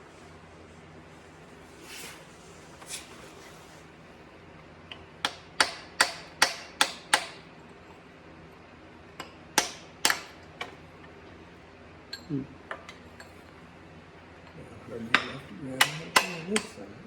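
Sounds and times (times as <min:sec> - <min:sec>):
hammer striking metal: 0:05.2 - 0:07.4, 0:15.1 - 0:16.8.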